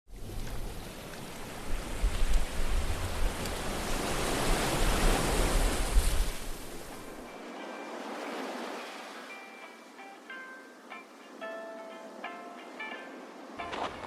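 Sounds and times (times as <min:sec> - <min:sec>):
water rushing: 0:00.1 - 0:14.0
wind buffeting the microphone: 0:00.2 - 0:07.2.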